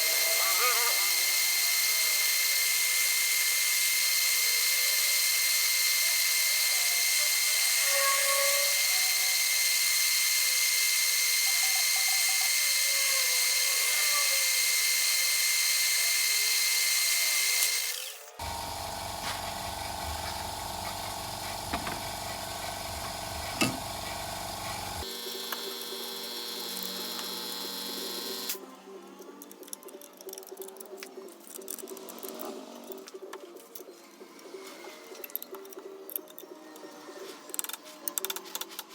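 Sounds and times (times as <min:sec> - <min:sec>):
metal lathe whine and hiss: 0:00.0 - 0:28.6.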